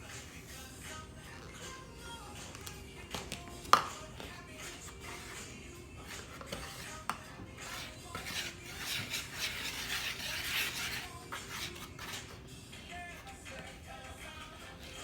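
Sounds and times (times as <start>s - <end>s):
spoon scraping in mixing bowl: 3.7s - 12.4s.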